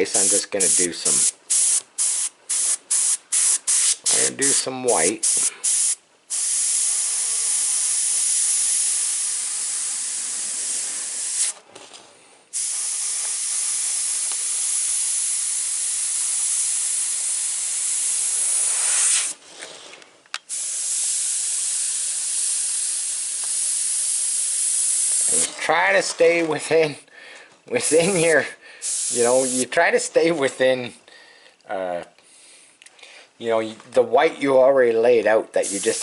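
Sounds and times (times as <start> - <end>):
airbrush spraying paint: 0.0 - 11.6, 12.5 - 19.4, 20.5 - 25.5, 28.8 - 29.7, 35.6 - 36.0.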